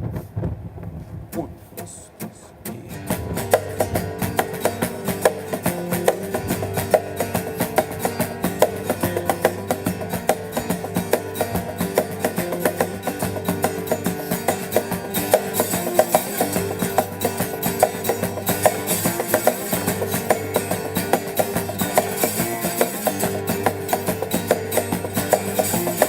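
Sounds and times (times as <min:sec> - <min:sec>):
guitar riffing: 0:01.2 - 0:26.0
driving percussion beat: 0:01.3 - 0:26.0.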